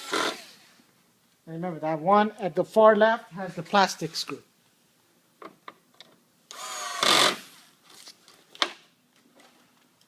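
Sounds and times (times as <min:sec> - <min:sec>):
power screwdriver whirring: 0:06.5 - 0:07.6.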